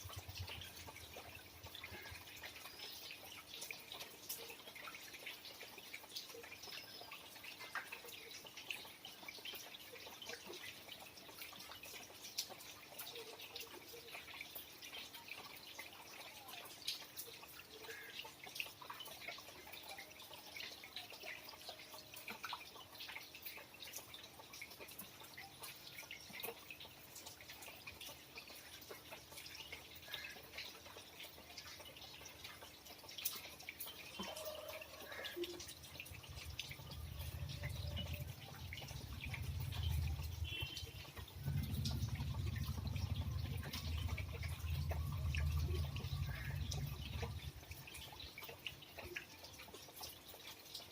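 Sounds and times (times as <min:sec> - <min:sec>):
rain dripping: 0:00.0 - 0:50.9
low rumble: 0:41.4 - 0:47.5.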